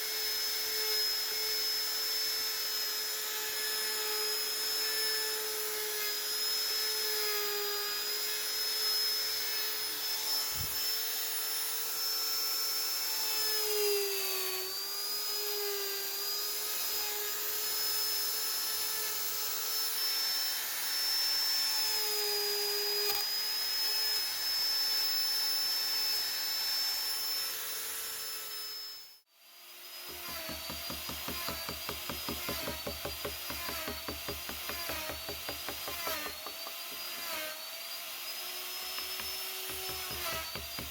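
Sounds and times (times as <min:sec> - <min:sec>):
rotary tool whining cutting wood: 0:00.0 - 0:40.9
rapidly pulsing tool: 0:29.6 - 0:40.9.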